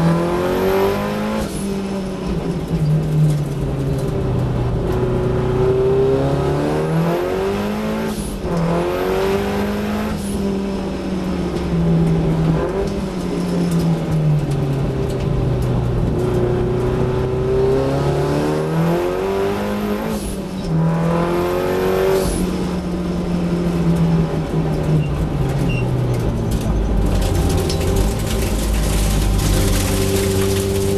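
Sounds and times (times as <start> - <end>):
race car engine accelerating: 15.6 - 30.9.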